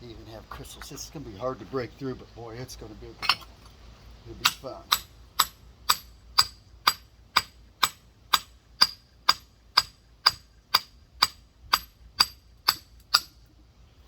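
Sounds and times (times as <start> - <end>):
rock hammer tapping stone: 4.4 - 13.4.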